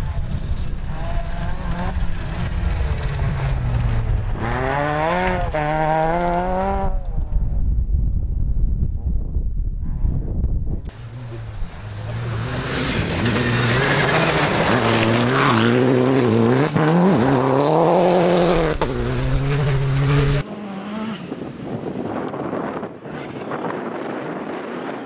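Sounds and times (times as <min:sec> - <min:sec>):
rally car engine revving: 0:00.0 - 0:07.4, 0:10.9 - 0:21.4.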